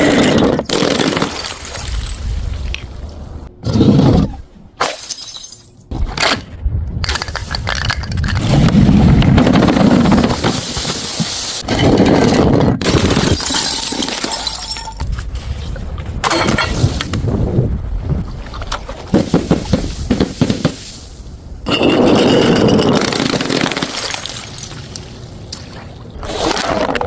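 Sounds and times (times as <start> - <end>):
glass bottles shattering: 0.9 - 2.2, 4.8 - 5.9, 12.9 - 15.0, 21.7 - 25.0.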